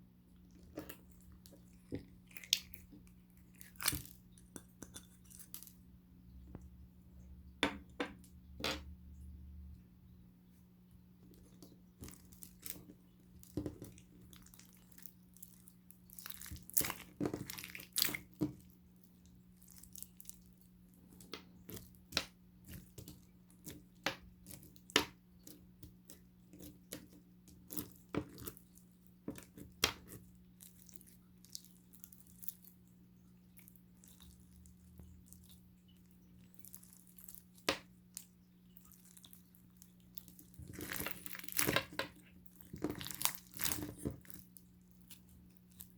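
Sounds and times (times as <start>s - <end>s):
slime squishing: 0.3s - 5.9s, 11.2s - 45.9s.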